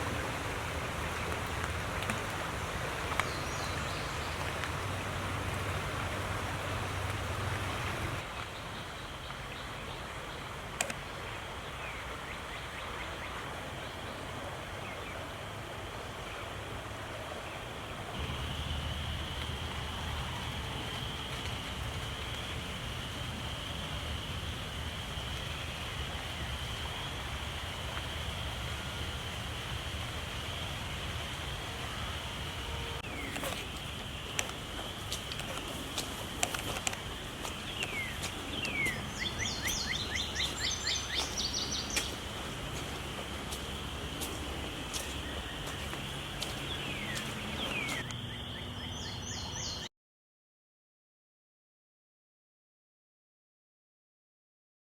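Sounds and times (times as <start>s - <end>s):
water rushing: 0.0s - 48.0s
birds calling: 33.0s - 49.9s.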